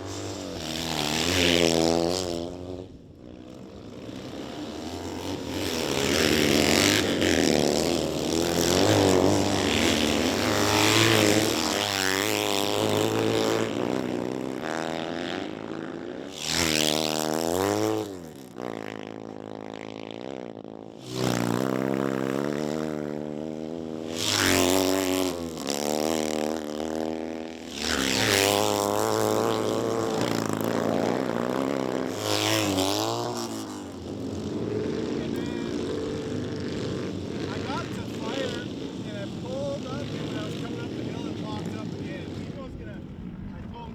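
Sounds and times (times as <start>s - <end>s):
racing motorcycles revving past: 0.0s - 43.9s.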